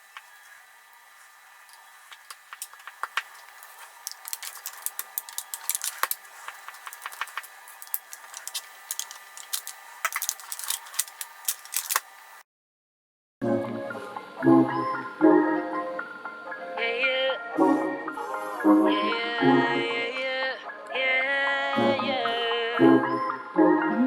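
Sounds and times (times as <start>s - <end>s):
crackles from eating a tart: 0.0s - 12.2s.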